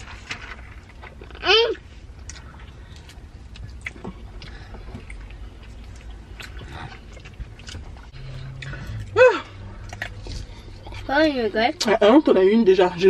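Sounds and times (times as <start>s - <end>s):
steady low rumble: 0.0s - 13.0s
person chewing: 2.2s - 11.1s.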